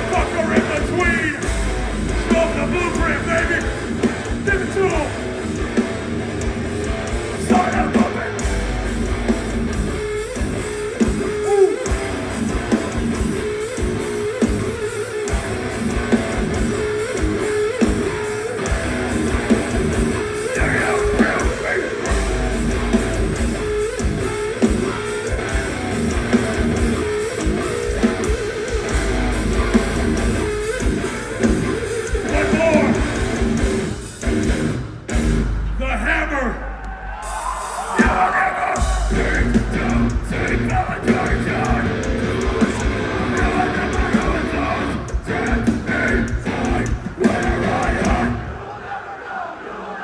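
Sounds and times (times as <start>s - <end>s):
distorted electric guitar riff: 0.0s - 48.5s
heavy band playing loud: 0.0s - 50.0s
drum hits: 36.9s - 48.4s.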